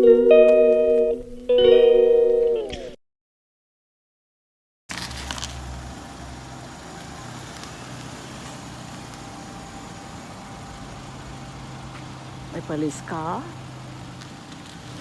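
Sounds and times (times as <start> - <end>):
car engine idling: 4.9 - 15.0.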